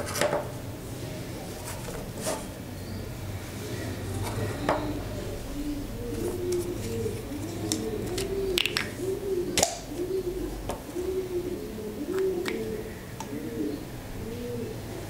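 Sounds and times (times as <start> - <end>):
bird cooing: 1.9 - 15.0.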